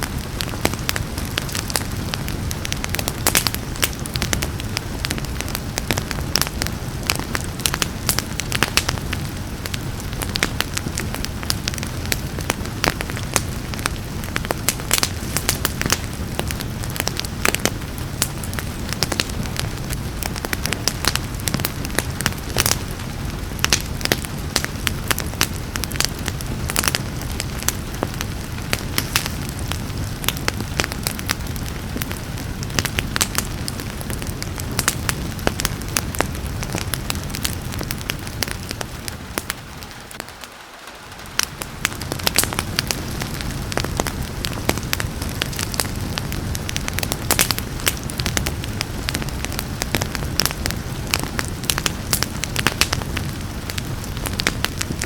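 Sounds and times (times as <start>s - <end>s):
rain hissing: 0.0s - 55.0s
wood fire crackling and popping: 0.0s - 55.0s.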